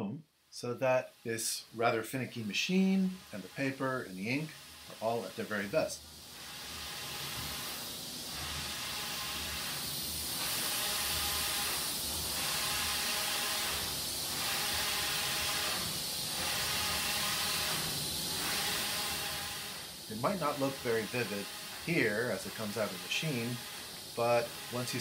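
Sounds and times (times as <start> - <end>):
inkjet printer running: 1.9 - 25.0
print-head carriage sweeping: 6.7 - 25.0.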